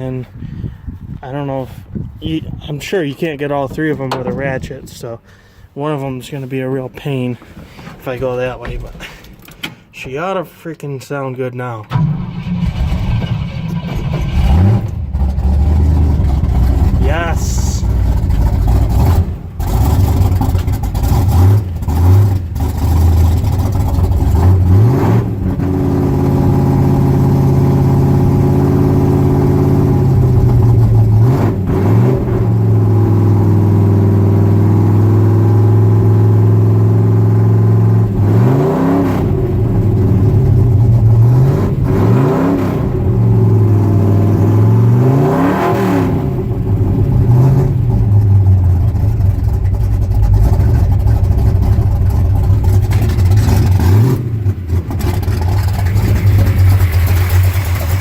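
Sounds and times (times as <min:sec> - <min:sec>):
pickup truck engine revving: 0:12.0 - 0:58.0.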